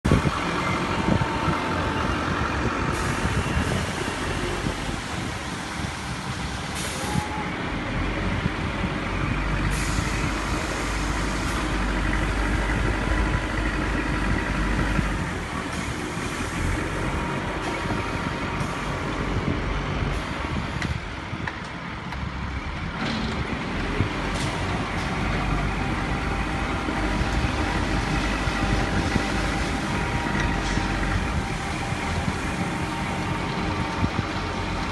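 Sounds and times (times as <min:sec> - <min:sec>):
diesel machinery rumbling: 0:00.0 - 0:34.9
construction knocks and clanks: 0:19.5 - 0:31.5.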